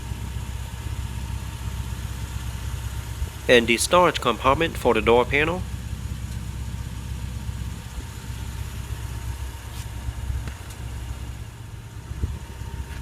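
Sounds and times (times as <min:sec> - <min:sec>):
engine idling: 0:00.0 - 0:13.0
faint steady hum: 0:03.2 - 0:08.8.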